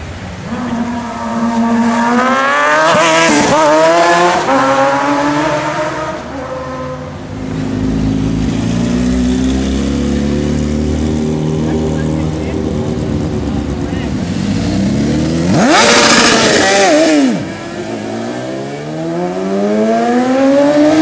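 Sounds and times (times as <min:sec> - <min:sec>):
motorcycle accelerating past: 0:14.4 - 0:21.0.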